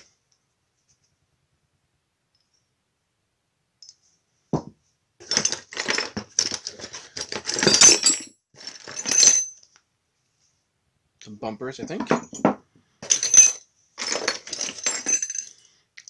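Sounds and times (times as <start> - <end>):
knock: 4.5 - 4.8
metal parts clinking: 5.2 - 9.6, 12.0 - 15.6.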